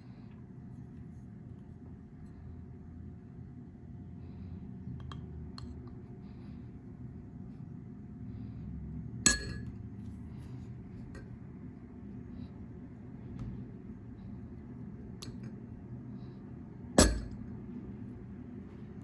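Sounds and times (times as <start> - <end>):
steady low hum: 0.0 - 19.0
glass clink: 9.3 - 9.7, 17.0 - 17.4.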